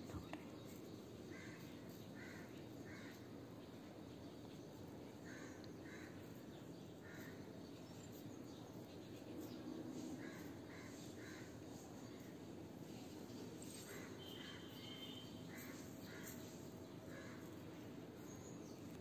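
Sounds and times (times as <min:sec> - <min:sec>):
steady background hiss: 0:00.0 - 0:19.0
faint bird caws: 0:01.2 - 0:03.5, 0:05.2 - 0:07.6, 0:09.9 - 0:12.3, 0:13.6 - 0:17.8.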